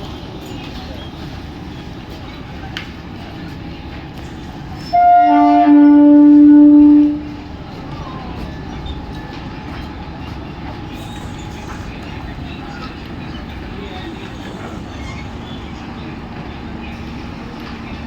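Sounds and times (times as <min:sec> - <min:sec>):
train rumbling: 0:00.0 - 0:18.0
train horn blast: 0:04.9 - 0:07.4.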